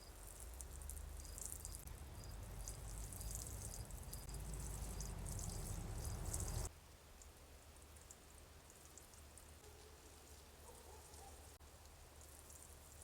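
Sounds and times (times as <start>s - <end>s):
water splashing onto soil: 0.1s - 6.7s.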